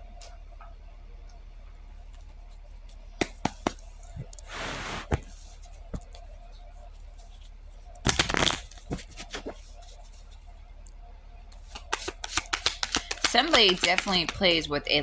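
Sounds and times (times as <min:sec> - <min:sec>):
cards shuffling: 0:03.2 - 0:06.3, 0:07.1 - 0:10.4, 0:11.6 - 0:14.7
card snaps: 0:08.1 - 0:09.6, 0:11.6 - 0:14.6.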